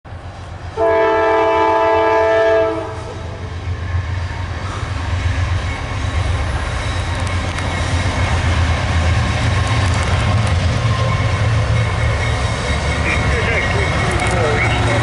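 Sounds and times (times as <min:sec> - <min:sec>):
freight train rumbling by: 0:00.1 - 0:15.0
locomotive air horn blast: 0:00.8 - 0:03.3.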